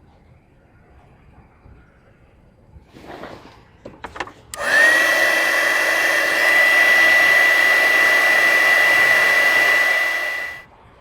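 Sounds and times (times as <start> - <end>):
heat gun fan whining: 4.5 - 10.7.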